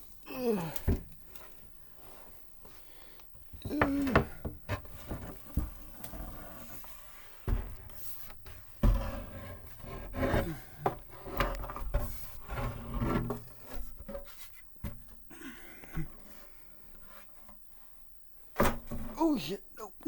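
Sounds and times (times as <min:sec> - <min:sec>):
wood rubbing and scraping: 0:00.0 - 0:15.3
wooden knocks: 0:03.6 - 0:05.9.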